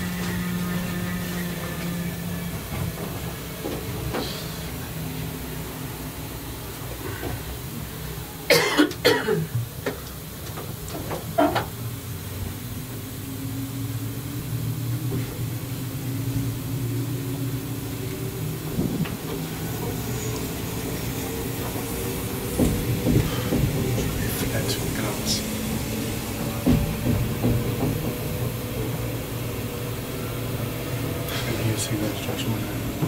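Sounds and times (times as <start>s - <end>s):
train coach rumbling: 0.0s - 33.0s
faint rising hum: 11.8s - 33.0s.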